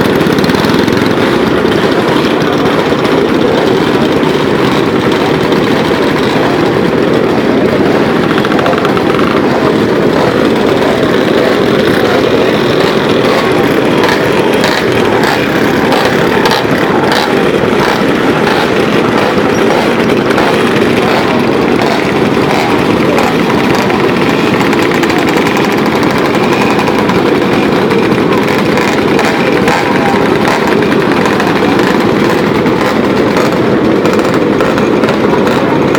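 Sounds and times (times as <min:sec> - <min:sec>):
exhaust pops and crackles: 0:00.0 - 0:35.9
motorcycle engines running: 0:00.0 - 0:35.9.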